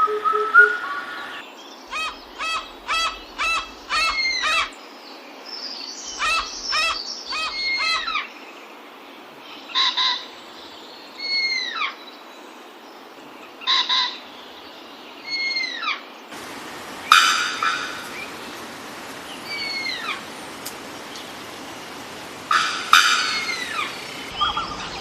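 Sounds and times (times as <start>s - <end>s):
birds calling nasal notes: 16.4s - 25.0s.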